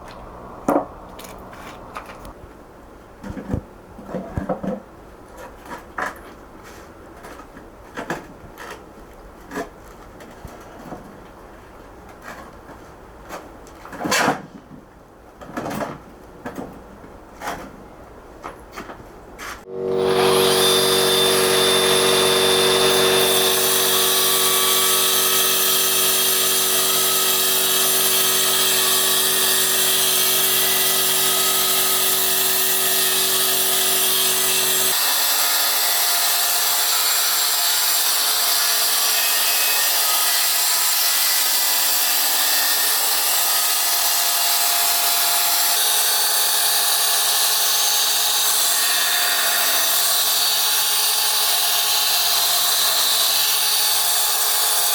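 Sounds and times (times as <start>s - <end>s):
low hum: 0.0s - 2.3s
power tool grinding stone: 19.7s - 54.9s.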